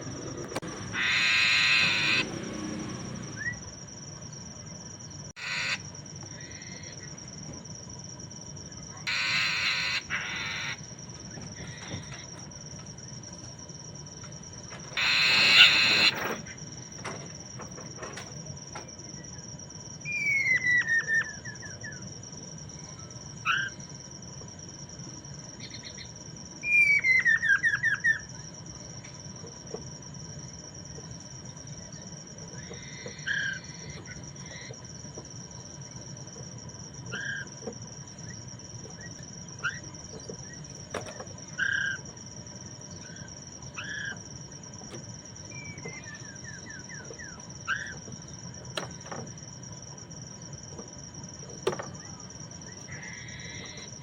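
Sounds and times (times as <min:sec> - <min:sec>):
laughingthrush calling: 0:00.0 - 0:03.6, 0:05.4 - 0:07.0, 0:09.0 - 0:10.9, 0:14.9 - 0:16.6, 0:32.6 - 0:34.8, 0:37.1 - 0:37.5, 0:39.0 - 0:40.0, 0:43.0 - 0:44.2, 0:45.5 - 0:48.1
high cricket-like drone: 0:00.0 - 0:54.0.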